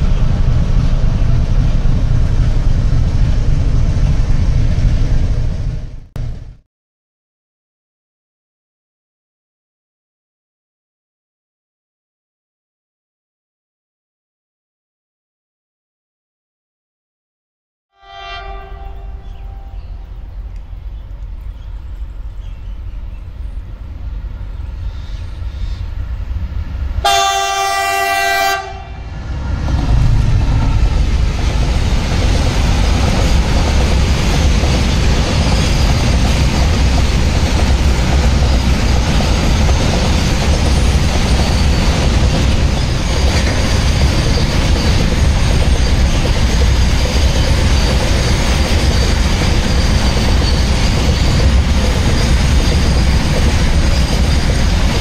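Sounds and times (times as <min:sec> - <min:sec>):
locomotive rumble: 0:00.0 - 0:06.6, 0:18.4 - 0:55.0
train horn blast: 0:17.9 - 0:20.0, 0:27.0 - 0:29.1
wagons rumbling and wheel clatter: 0:29.5 - 0:55.0.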